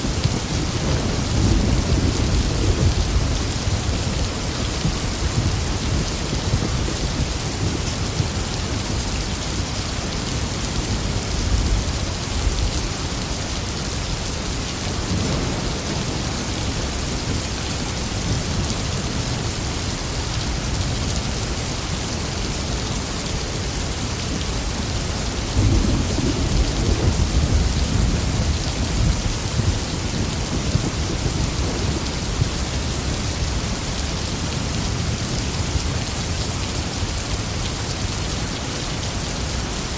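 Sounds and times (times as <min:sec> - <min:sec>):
rain pouring: 0:00.0 - 0:39.9
rolling thunder: 0:25.4 - 0:33.1.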